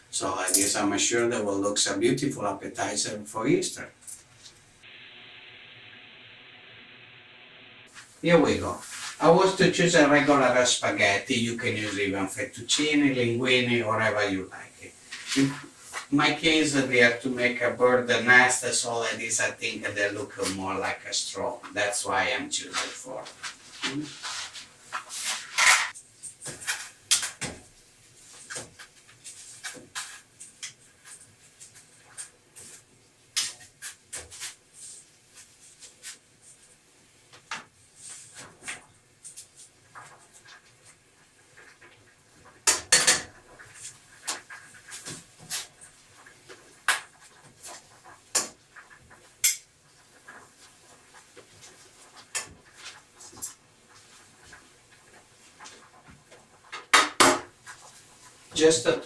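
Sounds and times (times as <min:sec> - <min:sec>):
utensils and pots clinking: 0:00.4 - 0:00.8, 0:42.6 - 0:43.4.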